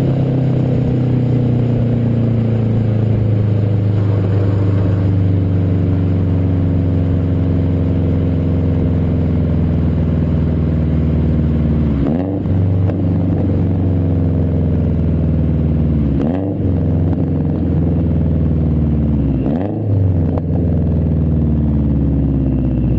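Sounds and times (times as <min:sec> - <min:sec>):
car engine idling: 0:00.0 - 0:22.9
engine throttle blips: 0:00.0 - 0:22.9.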